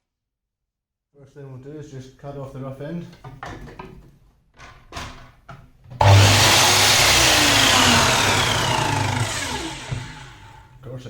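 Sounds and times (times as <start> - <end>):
mitre saw motor whine: 6.0 - 10.7.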